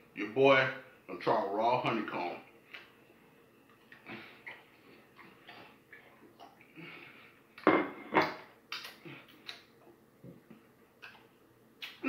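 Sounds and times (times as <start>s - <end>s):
chewing and smacking: 3.7s - 6.8s.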